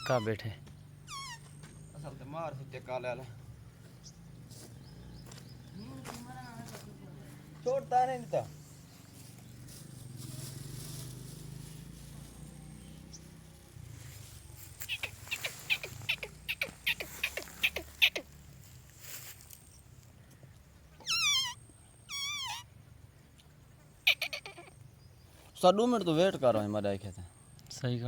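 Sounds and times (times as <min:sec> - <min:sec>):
parrot chirps and clicks: 0:24.1 - 0:24.7.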